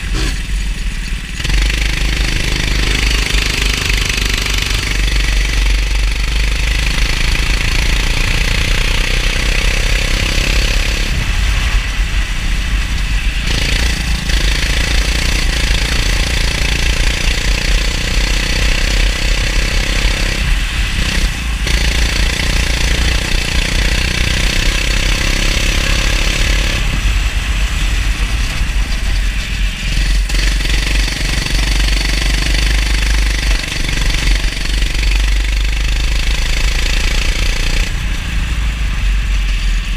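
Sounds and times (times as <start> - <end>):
go-kart engine running hard: 0.0 - 39.9
low rumble: 26.4 - 36.8, 37.8 - 39.9.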